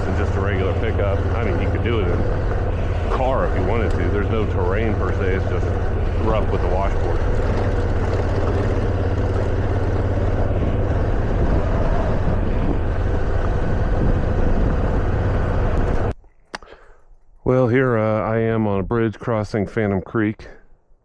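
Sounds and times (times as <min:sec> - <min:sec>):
motorcycle engine hum: 0:00.0 - 0:16.2
road rumble: 0:00.0 - 0:16.7
wind: 0:00.0 - 0:21.0.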